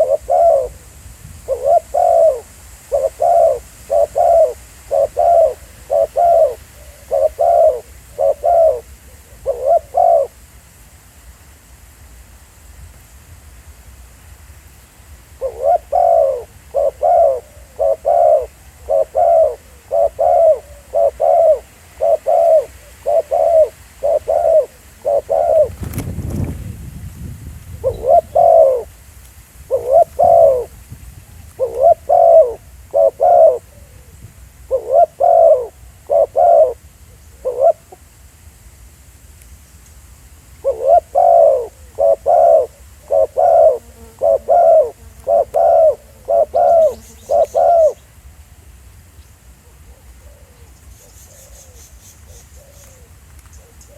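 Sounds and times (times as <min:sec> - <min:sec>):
dove cooing: 0:00.0 - 0:10.4, 0:15.4 - 0:26.2, 0:27.7 - 0:28.9, 0:29.7 - 0:30.8, 0:31.5 - 0:38.1, 0:40.6 - 0:48.0, 0:49.6 - 0:53.9.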